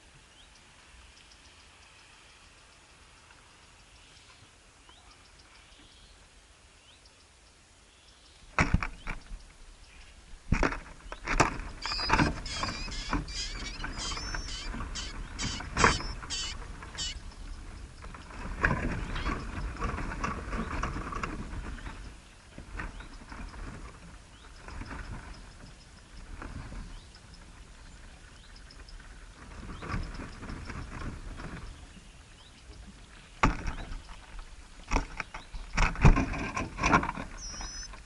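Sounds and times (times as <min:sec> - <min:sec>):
small birds chirping: 0:10.9 - 0:35.9, 0:37.3 - 0:38.0.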